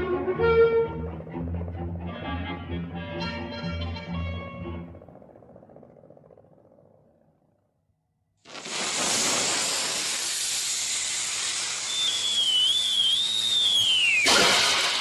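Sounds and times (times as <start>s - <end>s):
pressurized gas hissing: 8.5s - 15.0s
thin wavering whistle: 11.0s - 14.4s.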